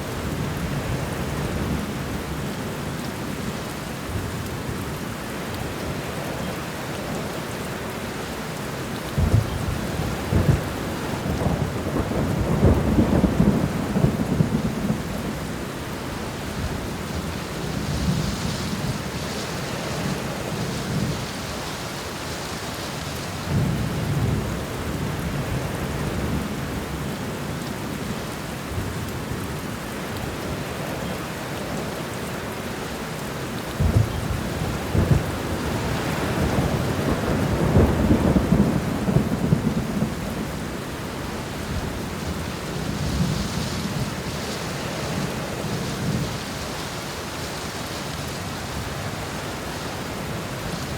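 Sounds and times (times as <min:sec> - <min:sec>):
heavy rain: 0:00.0 - 0:50.9
rolling thunder: 0:09.2 - 0:15.6, 0:33.8 - 0:46.5.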